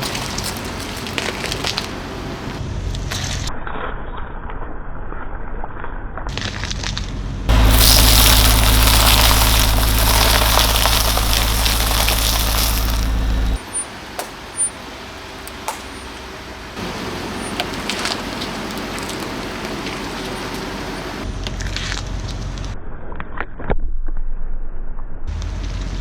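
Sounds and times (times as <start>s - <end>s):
tyres crushing objects: 0.0s - 2.6s, 7.5s - 21.2s
car engine humming: 0.0s - 2.7s, 7.5s - 21.4s.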